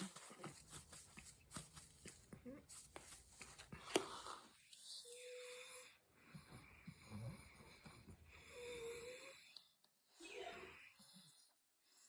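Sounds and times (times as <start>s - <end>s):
breathing: 5.2s - 9.8s.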